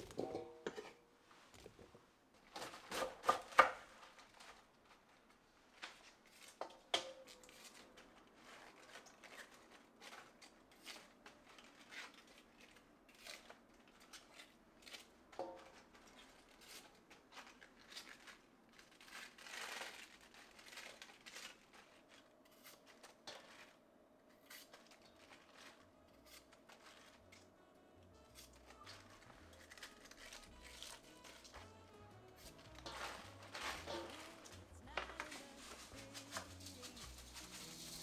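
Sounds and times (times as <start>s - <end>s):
brief rustle: 28.2s - 38.0s.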